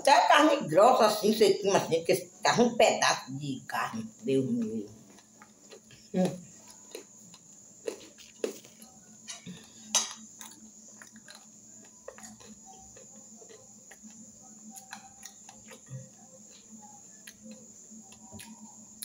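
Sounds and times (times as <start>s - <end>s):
person chewing food: 4.5s - 19.0s.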